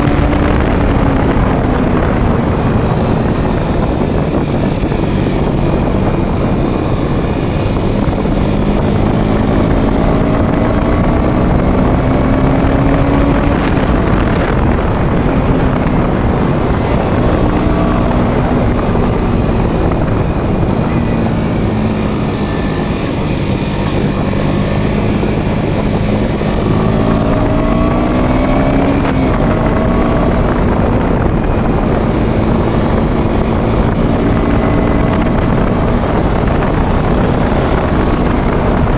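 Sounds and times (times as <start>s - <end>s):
motorcycle engine revving: 0.0s - 38.9s
wind rush: 0.0s - 38.9s.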